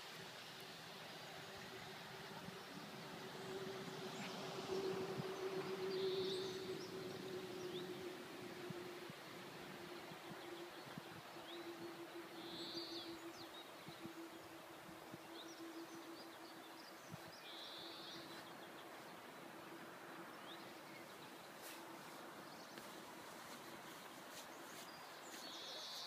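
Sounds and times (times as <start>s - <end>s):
small birds chirping: 9.6s - 26.0s.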